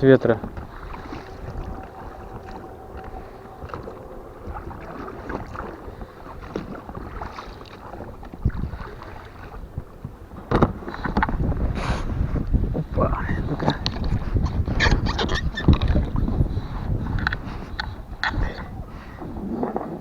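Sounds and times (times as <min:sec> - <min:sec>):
wind on microphone: 0:00.0 - 0:20.0
oar splashes and knocks: 0:00.4 - 0:11.7.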